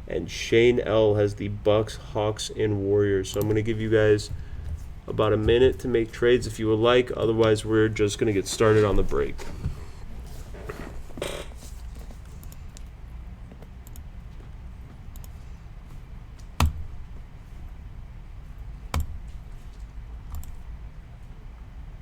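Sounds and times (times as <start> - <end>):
low room hum: 0.0 - 22.0
sharp knocks: 16.6 - 17.2.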